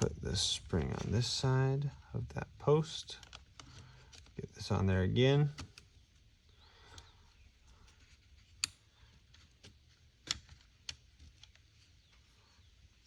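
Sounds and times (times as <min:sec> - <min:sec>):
small parts clicking and tapping: 0:03.1 - 0:04.4, 0:08.0 - 0:12.3.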